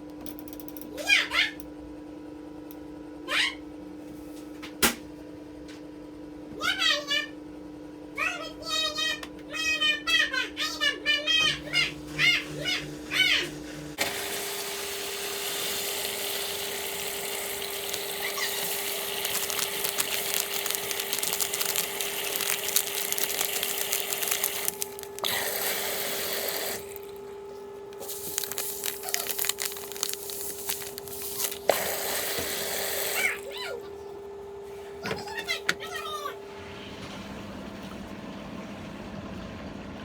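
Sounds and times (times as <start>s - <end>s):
water running: 13.4s - 27.3s, 27.9s - 33.4s
constant hum: 16.2s - 32.5s.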